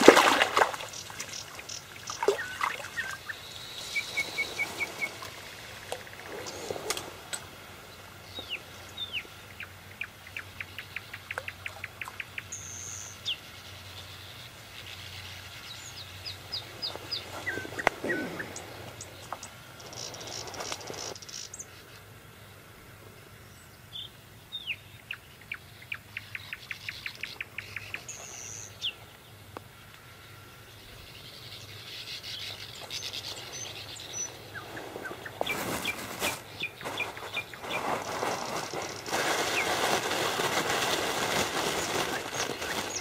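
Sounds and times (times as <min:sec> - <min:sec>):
songbird singing: 0:00.0 - 0:39.8, 0:41.2 - 0:43.0
rustling: 0:34.3 - 0:43.0.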